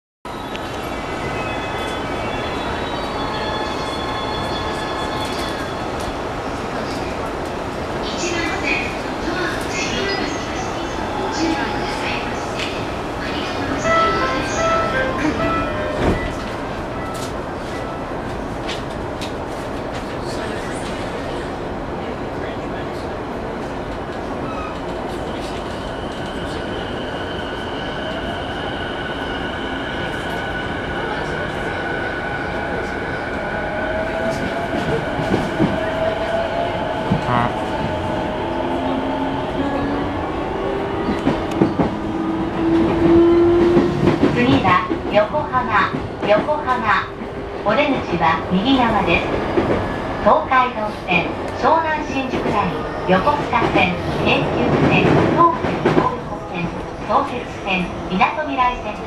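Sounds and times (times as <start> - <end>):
train wheels rumbling on rail: 28.0 - 59.0.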